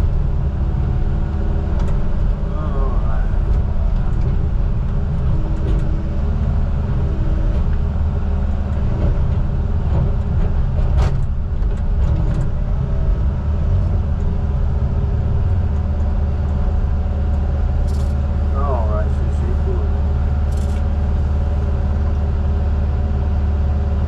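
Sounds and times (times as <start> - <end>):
heavy diesel engine running: 0.0 - 24.0
sharp click: 17.9 - 18.2, 20.5 - 20.9.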